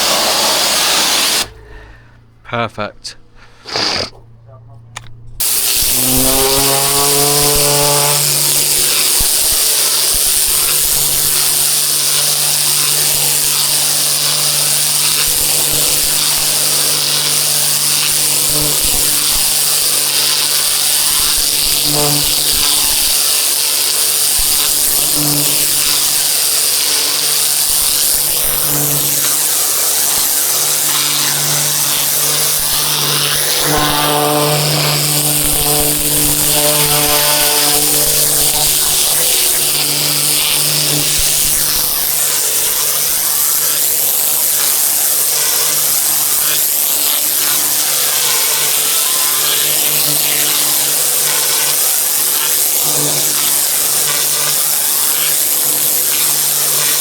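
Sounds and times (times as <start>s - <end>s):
pressure washer water jet hiss: 0.0s - 1.6s, 3.6s - 4.1s, 5.4s - 57.0s
pressure washer motor hum: 0.0s - 1.9s, 3.4s - 4.1s, 4.9s - 57.0s.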